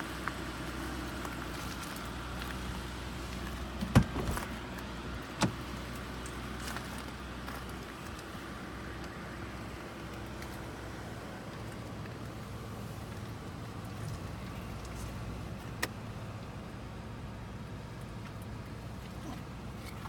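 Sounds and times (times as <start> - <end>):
car engine idling: 0.0 - 20.0
car clunks: 3.7 - 5.8.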